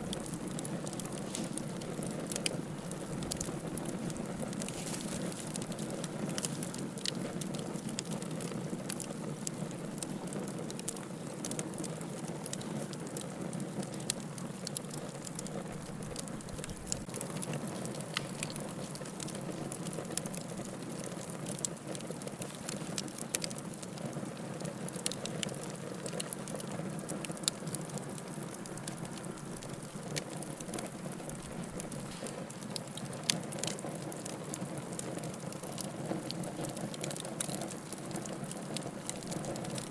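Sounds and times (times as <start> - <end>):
firewood crackling and popping: 0.0 - 39.9
low rush of flames: 0.0 - 39.9.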